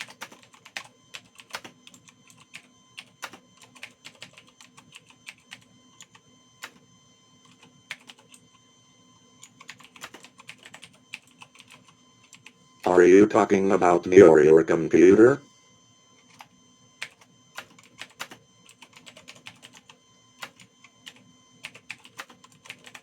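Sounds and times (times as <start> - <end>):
typing on computer keyboard: 0.0 - 6.8, 7.5 - 8.5, 9.4 - 12.5, 16.3 - 23.0
faint steady hum: 10.6 - 17.1.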